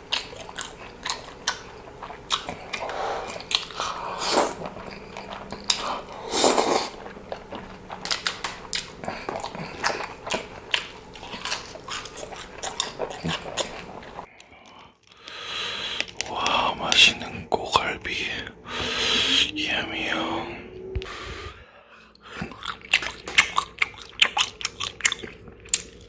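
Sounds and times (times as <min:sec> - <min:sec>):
chewing crunchy food: 0:00.0 - 0:18.4, 0:22.2 - 0:26.0
wet mouth clicks: 0:02.3 - 0:14.8.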